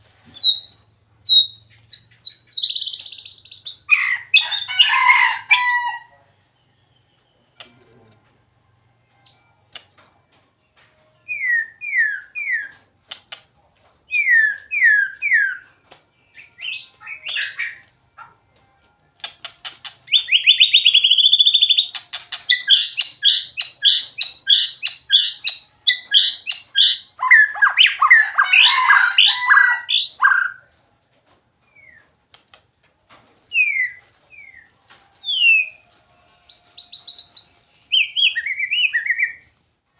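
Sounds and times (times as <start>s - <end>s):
songbird singing: 0.3s - 8.1s, 19.9s - 30.7s, 33.5s - 35.8s, 36.4s - 39.5s.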